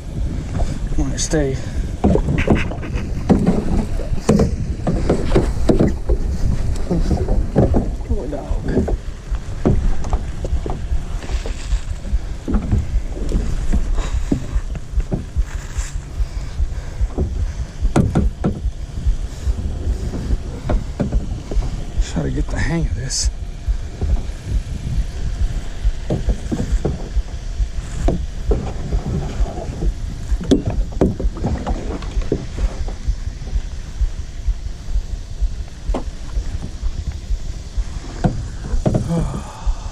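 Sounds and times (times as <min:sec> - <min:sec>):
wind rumble on microphone: 0:00.0 - 0:39.9
paddle splashing in water: 0:01.8 - 0:21.8, 0:27.8 - 0:33.9
short knocks: 0:17.0 - 0:18.7.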